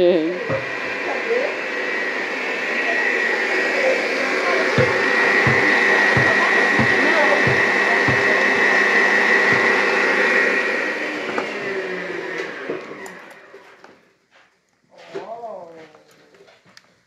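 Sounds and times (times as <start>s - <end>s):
machine motor whining: 0.3s - 13.8s.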